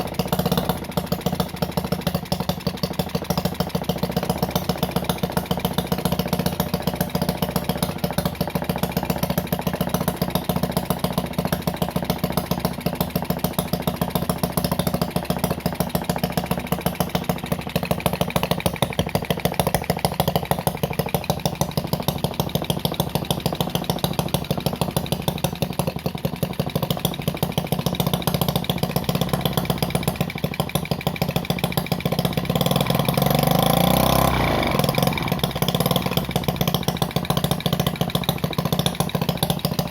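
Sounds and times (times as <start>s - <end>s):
miniature engine firing rapidly: 13.2s - 39.9s.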